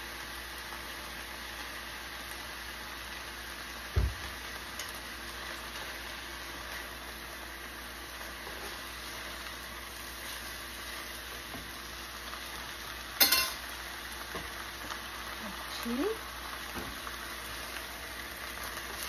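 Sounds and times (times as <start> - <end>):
food sizzling in a frying pan: 0.0 - 19.0
dull low thump: 4.0 - 4.3.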